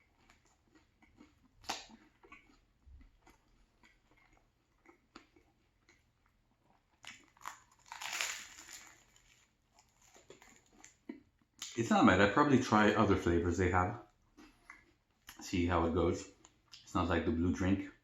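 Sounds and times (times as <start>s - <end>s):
crunchy bite: 1.1s - 2.6s, 7.0s - 11.0s.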